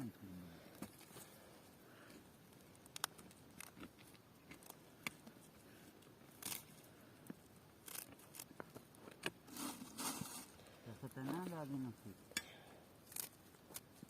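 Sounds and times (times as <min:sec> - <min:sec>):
dry plant stems snapping: 0:02.8 - 0:05.2, 0:06.3 - 0:06.7, 0:07.8 - 0:09.3, 0:13.0 - 0:13.9.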